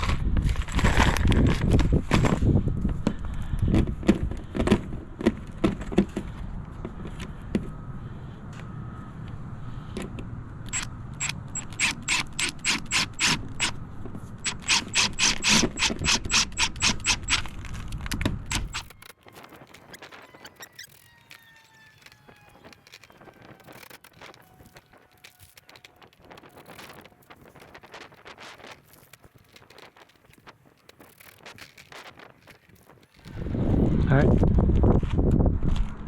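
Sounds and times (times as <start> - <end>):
knocks and handling noise: 0.0 - 7.8
rapid mechanical clicking: 10.6 - 13.8, 14.4 - 21.0.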